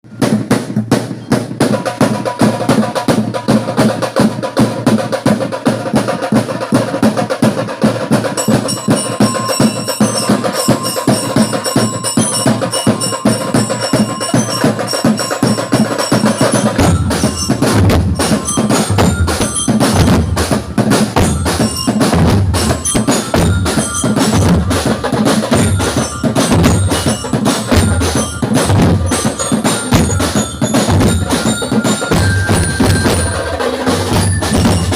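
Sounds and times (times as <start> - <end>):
drums beating: 0.1 - 34.9
bell-like mallet notes: 8.3 - 34.9
bass drum: 16.1 - 34.9.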